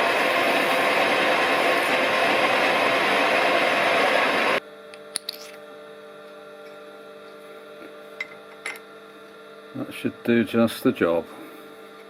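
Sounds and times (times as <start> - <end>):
lathe turning metal: 0.0 - 4.6.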